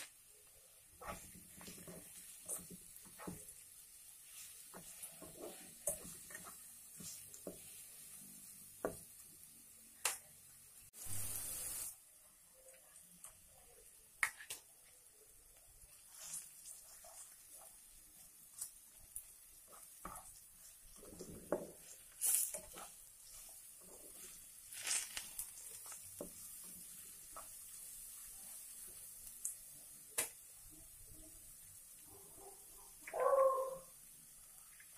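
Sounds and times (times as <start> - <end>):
food sizzling in a wok: 0.0 - 34.9
clicks and scrapes in wok: 18.6 - 27.7.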